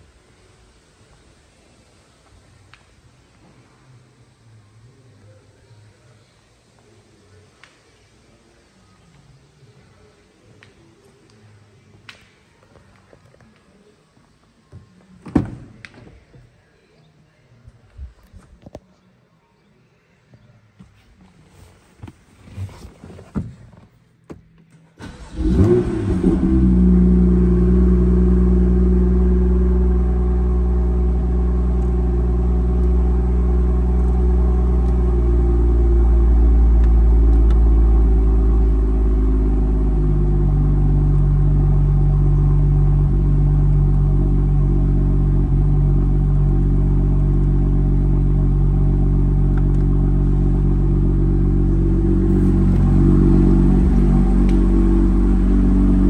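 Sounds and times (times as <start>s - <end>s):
car engine starting and idling: 24.8s - 56.0s.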